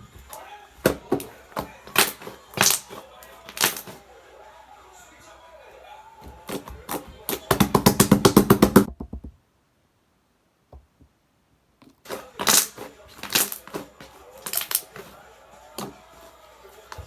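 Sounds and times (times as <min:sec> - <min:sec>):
slime squelching pops: 0:01.9 - 0:04.0.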